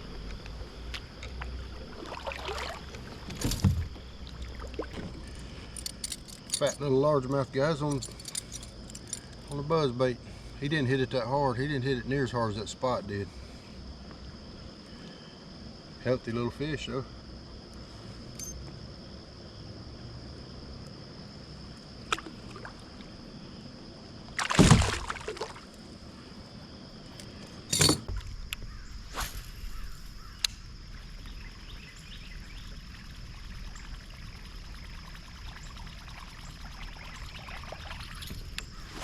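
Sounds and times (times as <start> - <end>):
high insect drone: 0.0 - 39.0
water splashing at a kayak: 1.2 - 5.7, 24.3 - 25.8, 32.6 - 39.0.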